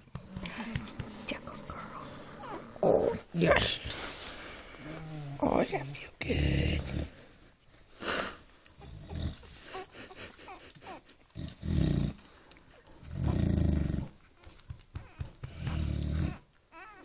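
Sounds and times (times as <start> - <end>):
puppies grunting and growling: 0.0 - 7.4, 8.7 - 17.0
puppies squeaking: 14.2 - 17.0.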